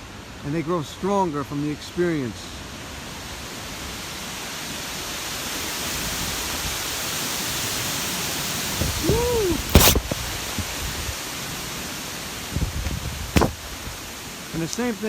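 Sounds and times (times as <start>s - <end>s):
strong wind through trees: 0.0s - 15.0s
sharp knock: 9.7s - 10.2s, 13.4s - 13.6s.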